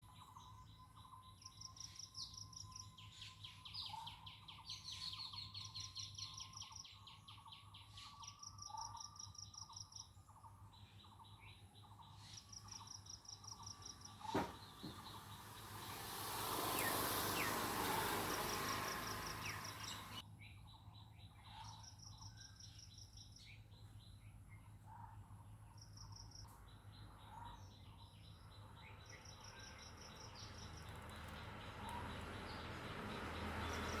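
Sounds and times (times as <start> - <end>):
bird chirps: 0.0 - 24.7
insect trilling in pulsed bursts: 15.0 - 20.2
loud rushing noise: 15.0 - 20.2.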